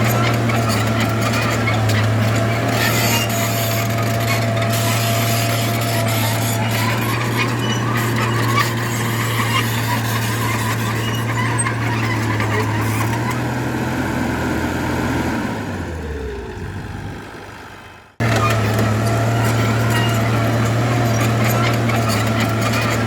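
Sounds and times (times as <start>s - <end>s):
short metallic squeaks: 0.0s - 13.4s, 18.2s - 23.0s
diesel engine running under load: 0.0s - 23.0s.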